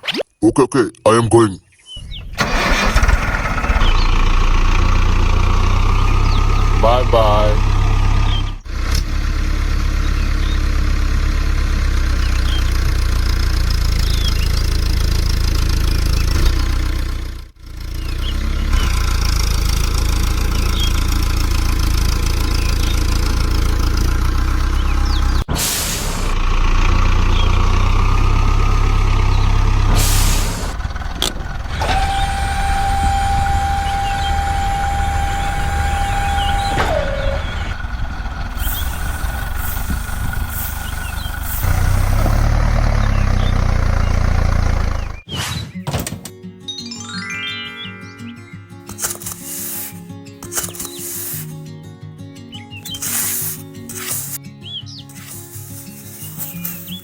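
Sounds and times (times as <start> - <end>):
engine idling: 2.0 - 45.3.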